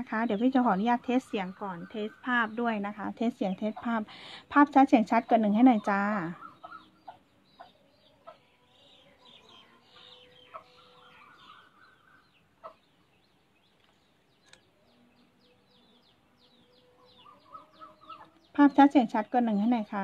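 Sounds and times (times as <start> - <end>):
faint bird calls: 6.1 - 18.6
soft clicks: 13.7 - 14.7.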